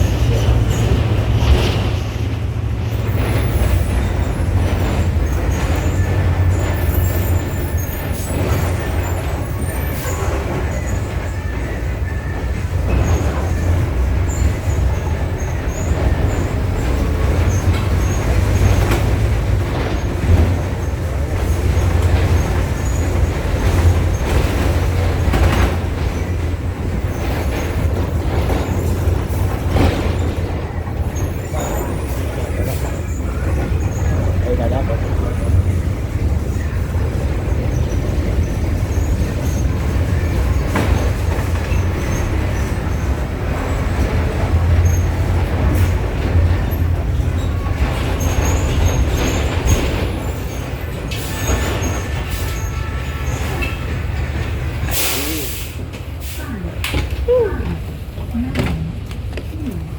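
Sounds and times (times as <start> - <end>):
bus body rattling and knocking: 0.0 - 59.9
bus engine running: 0.0 - 59.9.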